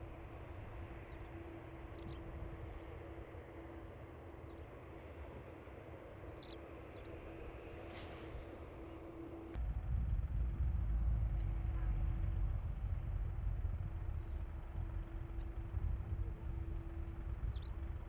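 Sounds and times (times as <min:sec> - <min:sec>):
low outdoor rumble with hum: 0:00.0 - 0:18.0
loud low rumble: 0:09.6 - 0:18.0.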